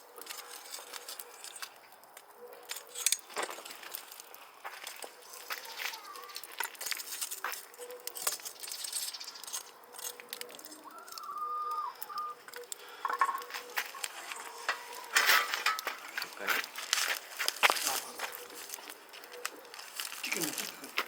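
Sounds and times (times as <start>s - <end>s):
cooking fire crackling: 0.0s - 21.0s
bird calling: 5.0s - 6.6s, 7.4s - 16.7s, 17.4s - 21.0s.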